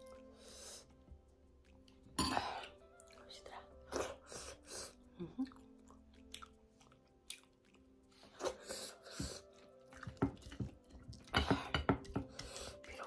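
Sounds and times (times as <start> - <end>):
chewing and mouth smacking: 5.4 - 8.6, 9.5 - 11.3.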